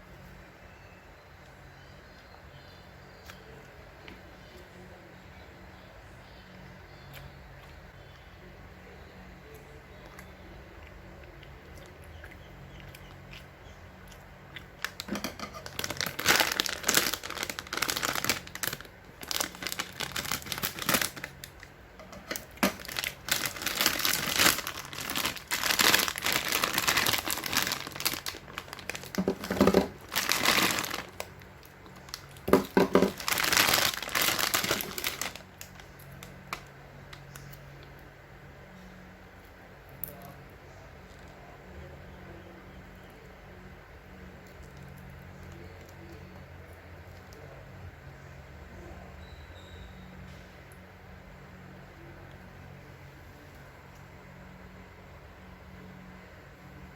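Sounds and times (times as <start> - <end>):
snack packaging crinkling: 14.5 - 37.6.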